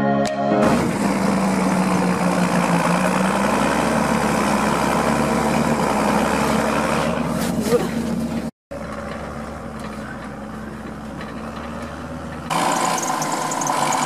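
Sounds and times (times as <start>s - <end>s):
background music: 0.0s - 0.9s
tractor diesel engine running: 0.0s - 14.0s.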